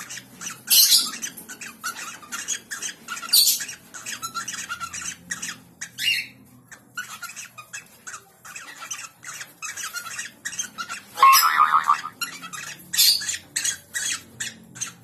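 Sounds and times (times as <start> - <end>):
birds squawking: 8.6 - 15.0.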